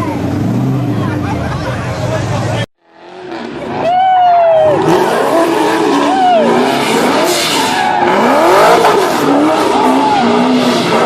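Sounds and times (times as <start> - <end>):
car engine revving: 4.7 - 11.0.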